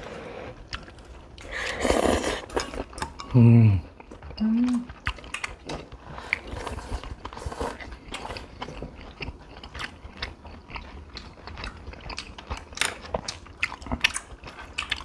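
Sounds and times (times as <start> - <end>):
chewing and wet mouth smacks: 4.0 - 15.0.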